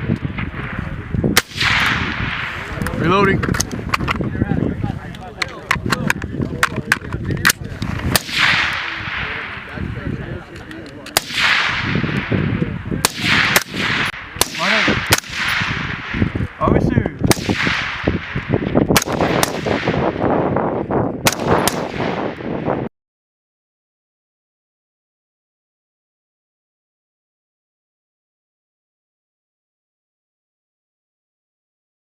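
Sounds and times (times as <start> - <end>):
rifle shots with echo: 0.0 - 3.8, 5.9 - 10.4, 11.0 - 22.9.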